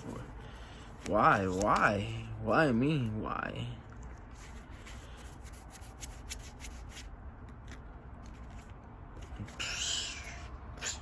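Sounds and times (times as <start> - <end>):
cards rustling: 0.0 - 10.9
trading cards rubbing and clicking: 3.9 - 11.0.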